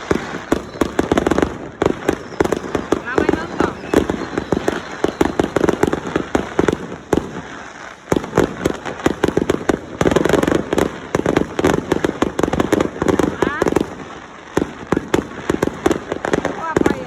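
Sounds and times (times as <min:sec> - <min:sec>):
fireworks cracking and banging: 0:00.0 - 0:17.0.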